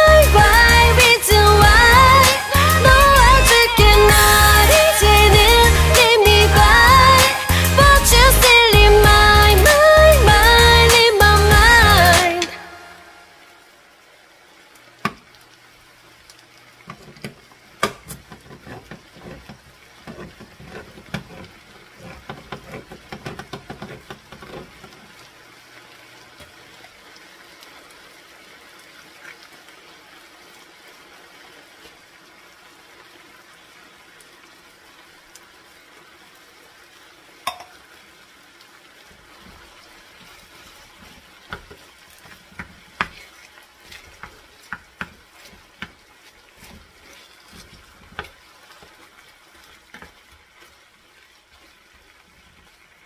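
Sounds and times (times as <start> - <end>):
chicken sizzling in a skillet: 4.1 - 8.0, 13.6 - 52.9
can and spatula knocking on pan: 16.9 - 25.0, 37.4 - 37.8, 44.1 - 46.0.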